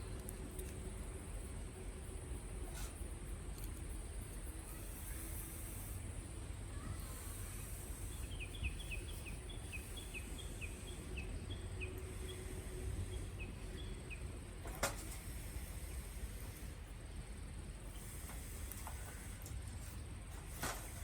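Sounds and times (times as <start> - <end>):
low outdoor rumble: 0.0 - 21.0
songbird chirping: 6.8 - 14.7.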